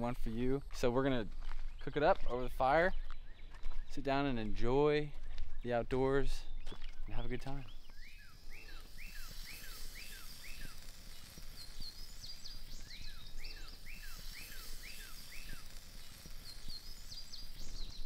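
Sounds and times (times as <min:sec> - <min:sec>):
higher bird singing fast notes: 0:06.4 - 0:18.0
songbird whistled phrases: 0:06.5 - 0:18.0.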